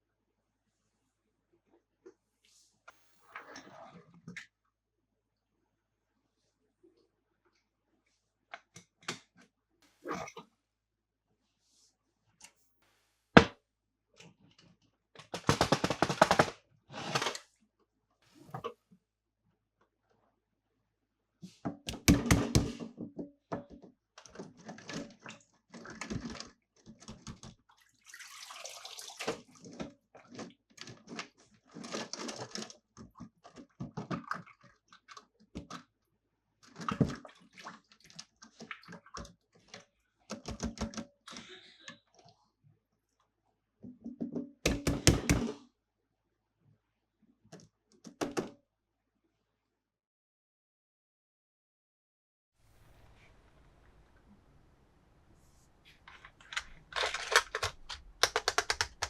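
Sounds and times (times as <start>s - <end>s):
toy cars and plastic packaging rattling: 29.3s - 34.2s, 55.9s - 59.0s.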